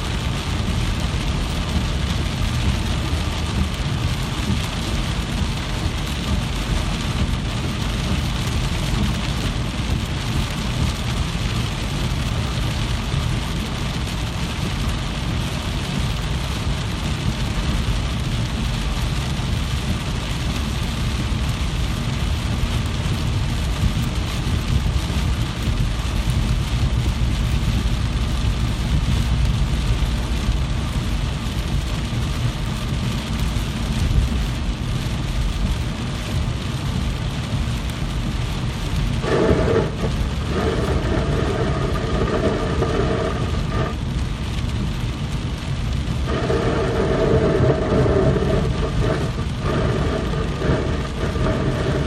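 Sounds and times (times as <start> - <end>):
constant low rumble: 0.0 - 52.0
steady rain: 0.0 - 52.0
sound with steady tones: 36.2 - 52.0.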